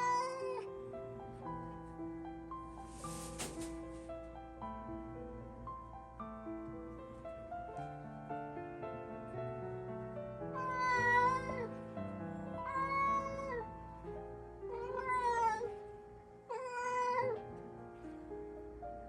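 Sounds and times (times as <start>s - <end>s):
cat meowing: 0.0s - 0.7s, 10.6s - 11.7s, 12.6s - 13.6s, 14.7s - 15.7s, 16.5s - 17.4s
soft piano music: 0.0s - 19.0s.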